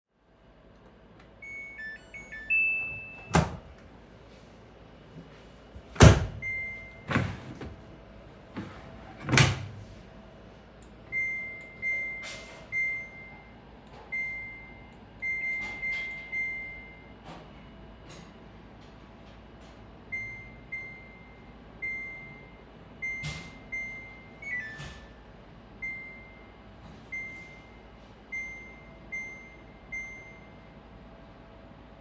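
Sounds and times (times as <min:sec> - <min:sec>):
washing machine beeping: 0:01.3 - 0:03.9, 0:05.8 - 0:08.0, 0:08.6 - 0:10.0, 0:11.0 - 0:17.8, 0:20.0 - 0:30.9.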